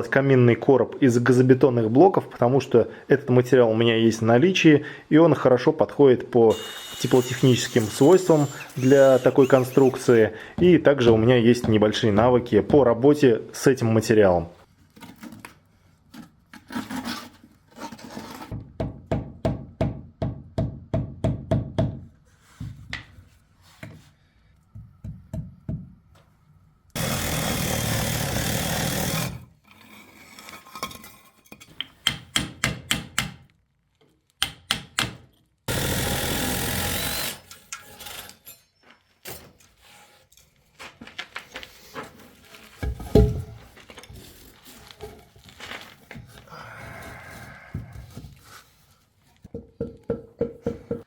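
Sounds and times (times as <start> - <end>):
power tool running: 6.5 - 10.2, 27.0 - 29.3
hand-sawing concrete blocks: 6.5 - 10.4, 16.6 - 18.6, 27.0 - 30.7.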